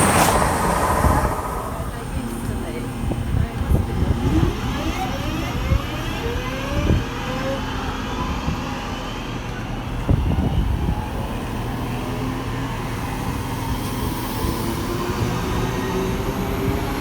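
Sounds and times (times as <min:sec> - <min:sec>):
low drone: 0:00.0 - 0:06.8
train drive whine: 0:00.0 - 0:17.0.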